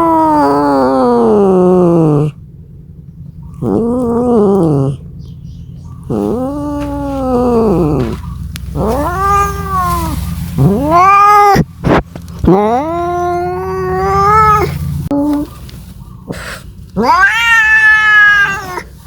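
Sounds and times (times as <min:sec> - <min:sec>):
cat yowling: 0:00.0 - 0:02.4, 0:03.6 - 0:05.0, 0:06.1 - 0:11.7, 0:12.4 - 0:15.5, 0:17.0 - 0:19.0.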